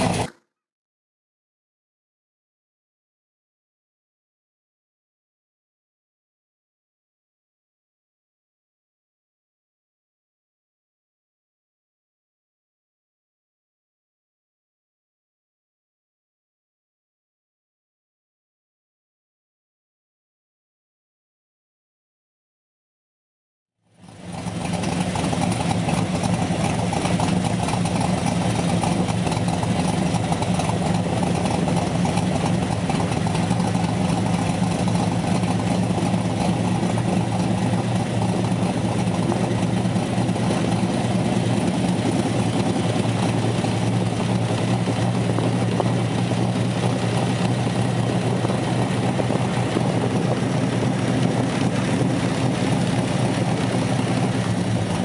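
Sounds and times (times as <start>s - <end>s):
car engine running at low revs: 0.0s - 0.4s, 23.9s - 55.0s.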